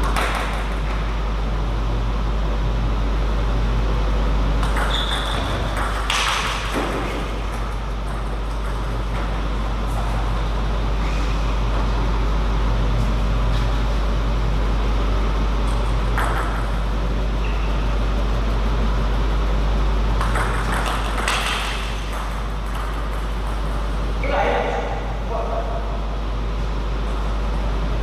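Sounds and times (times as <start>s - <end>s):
low hum and hall noise: 0.0s - 28.0s
table tennis ball clicks: 4.6s - 8.8s.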